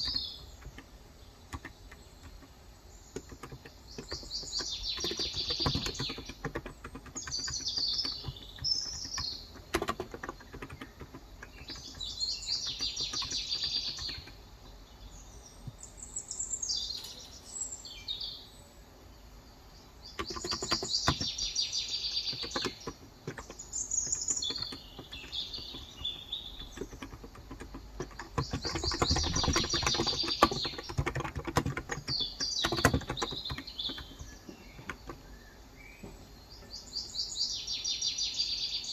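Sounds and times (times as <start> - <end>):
keyboard keystrokes clicking: 0.0 - 2.5, 3.1 - 14.4, 20.2 - 21.5, 22.3 - 35.3
birds twittering: 0.0 - 38.9.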